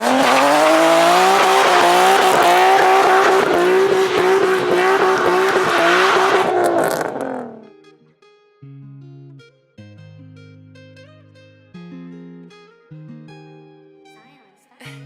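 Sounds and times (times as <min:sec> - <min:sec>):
car engine at high revs: 0:00.0 - 0:07.7
tires squealing: 0:00.0 - 0:07.7.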